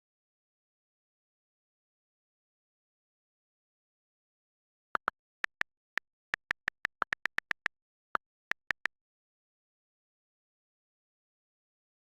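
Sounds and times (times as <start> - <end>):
short sharp clicks: 6.4 - 7.8, 8.5 - 8.9.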